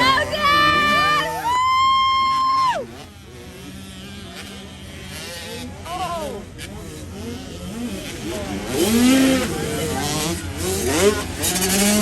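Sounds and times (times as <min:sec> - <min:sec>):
high-pitched cheering yell: 0:00.0 - 0:03.0.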